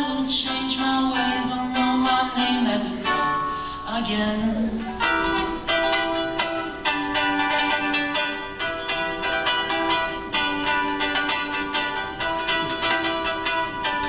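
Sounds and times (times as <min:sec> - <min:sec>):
ukulele strummed fast: 0:04.2 - 0:14.0.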